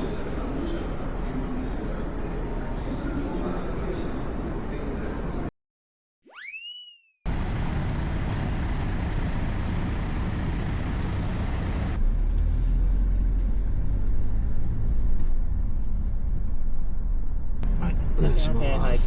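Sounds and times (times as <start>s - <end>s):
car engine and road noise: 7.3s - 19.0s.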